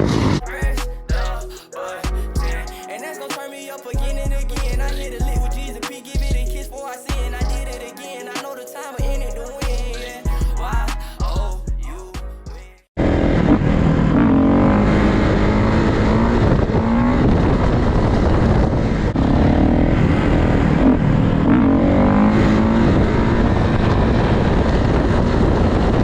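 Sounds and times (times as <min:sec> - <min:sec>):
noisy background: 0:00.0 - 0:14.8
music: 0:00.4 - 0:12.9
motorcycle engines revving: 0:13.0 - 0:24.5.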